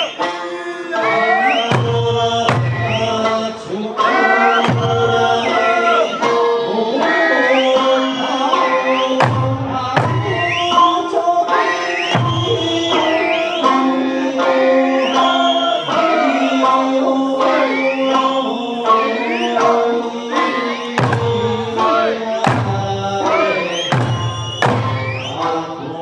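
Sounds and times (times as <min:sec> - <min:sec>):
instrumental accompaniment: 0:00.0 - 0:26.0
person singing folk song: 0:00.0 - 0:26.0
heavy drum strikes: 0:01.6 - 0:06.5, 0:09.2 - 0:13.8, 0:20.2 - 0:25.8.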